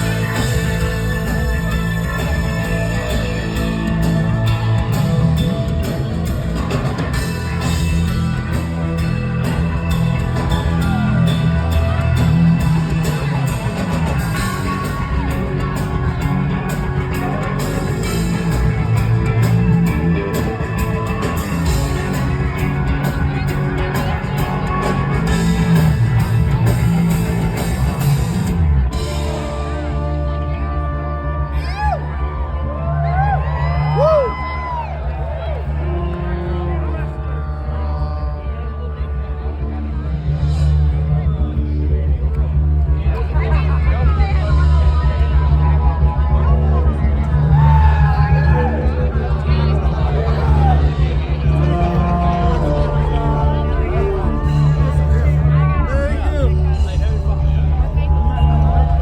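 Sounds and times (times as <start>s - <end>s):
live psychedelic rock band: 0.0s - 59.0s.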